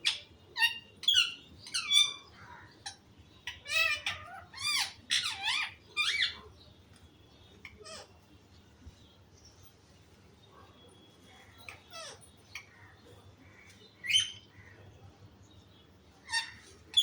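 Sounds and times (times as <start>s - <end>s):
parrot squeaky calls: 0.0s - 6.5s, 7.6s - 8.2s, 11.6s - 12.7s, 14.0s - 14.5s, 16.2s - 17.0s.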